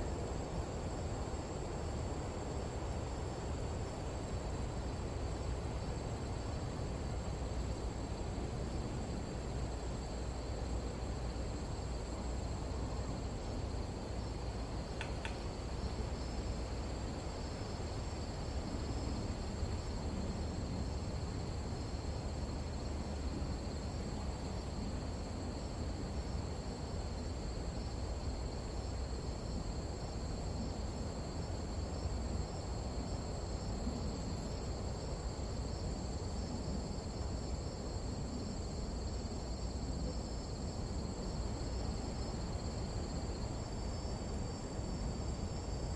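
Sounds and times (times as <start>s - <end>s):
insects trilling: 0.0s - 45.9s.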